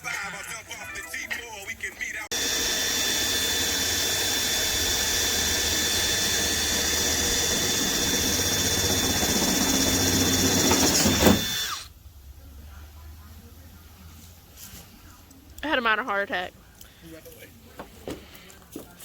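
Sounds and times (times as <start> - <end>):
power drill boring sheet metal: 2.3 - 11.9.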